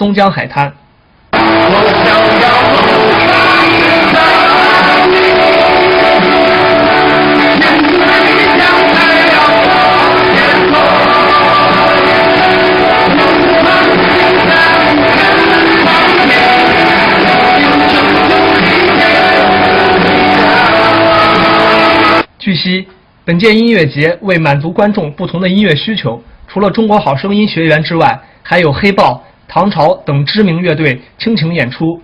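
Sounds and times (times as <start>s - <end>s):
crowd singing along: 1.4s - 22.3s
lead vocal singing: 1.4s - 22.3s
live rock band: 1.4s - 22.3s.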